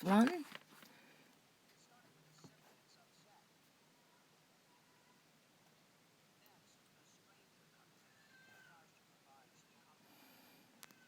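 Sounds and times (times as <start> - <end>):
pet whining call: 8.0 - 8.8.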